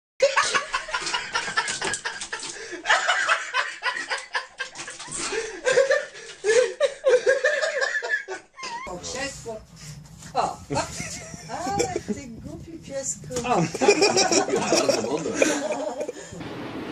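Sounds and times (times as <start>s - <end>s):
person laughing: 0.2s - 8.9s, 10.7s - 12.3s, 13.5s - 16.3s.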